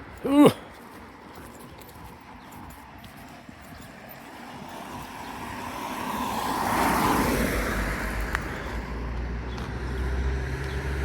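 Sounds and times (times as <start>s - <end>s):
car passing by: 4.3s - 11.0s.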